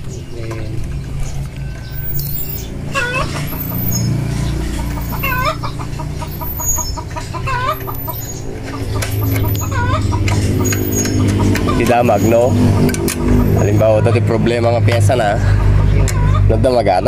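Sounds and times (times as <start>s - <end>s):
chickens clucking: 0.0s - 17.0s
steady low hum: 0.0s - 17.0s
sharp chicken call: 5.0s - 11.9s.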